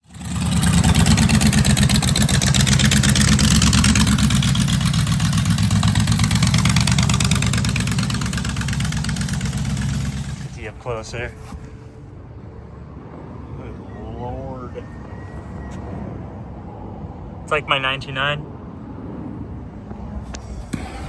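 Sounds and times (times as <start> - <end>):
vehicle engine running: 0.0 - 13.2, 19.8 - 21.0.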